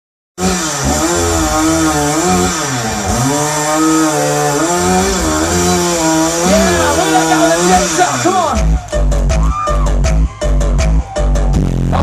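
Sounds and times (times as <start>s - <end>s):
chainsaw engine revving: 0.4s - 8.9s.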